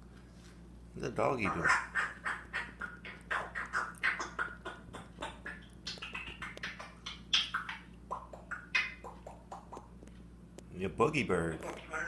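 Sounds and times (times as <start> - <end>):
talking bird chattering: 1.2 - 10.0.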